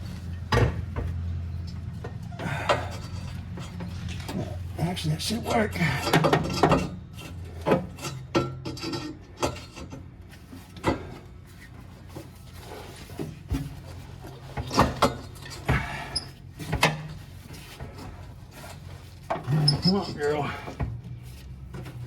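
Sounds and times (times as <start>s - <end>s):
metal exhaust parts scraping: 0.0s - 22.0s.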